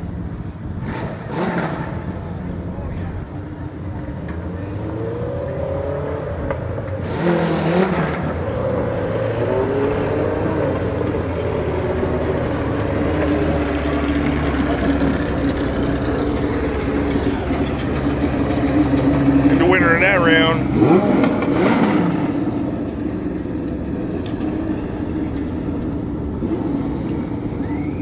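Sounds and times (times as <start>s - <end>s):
lawn mower engines revving: 7.5s - 27.4s.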